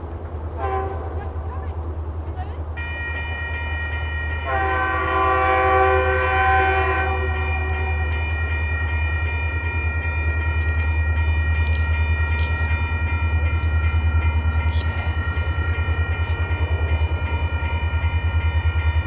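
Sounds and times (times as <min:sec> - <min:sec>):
locomotive rumbling: 0:00.0 - 0:19.0
locomotive horn chord: 0:00.5 - 0:01.9, 0:02.8 - 0:09.1.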